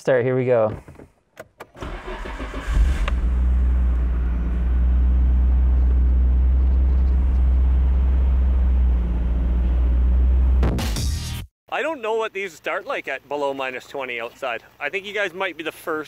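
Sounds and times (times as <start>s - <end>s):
car engine starting and idling: 1.4s - 10.7s.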